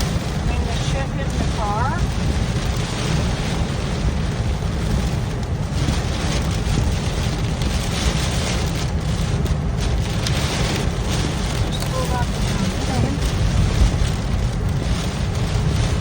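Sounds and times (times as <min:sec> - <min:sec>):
heavy rain hitting a car: 0:00.0 - 0:16.0
road and engine noise: 0:00.0 - 0:16.0.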